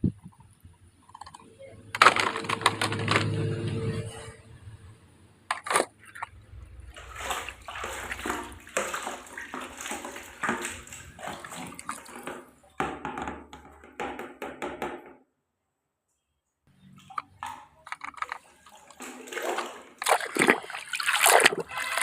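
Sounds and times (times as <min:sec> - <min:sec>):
water sloshing and splashing: 0:00.3 - 0:04.4, 0:05.5 - 0:12.8, 0:16.8 - 0:22.0.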